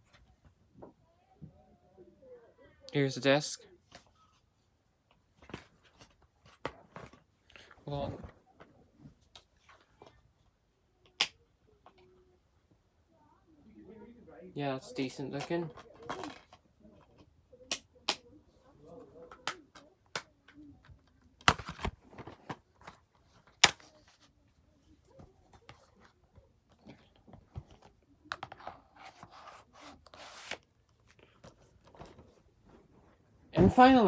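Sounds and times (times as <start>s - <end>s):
plastic cases clicking and snapping: 21.4s - 23.8s.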